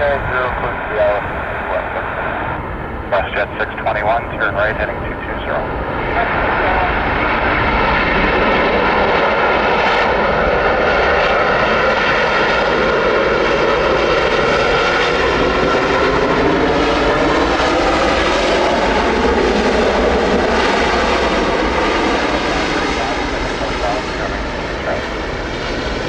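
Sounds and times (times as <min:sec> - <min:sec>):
whining engine tones: 0:00.0 - 0:08.9
airliner engines roaring: 0:00.0 - 0:26.0.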